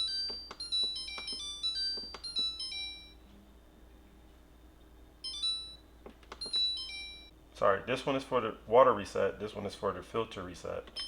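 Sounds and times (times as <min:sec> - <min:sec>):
melodic electronic beeps: 0:00.0 - 0:03.2, 0:05.2 - 0:05.8, 0:06.4 - 0:07.3.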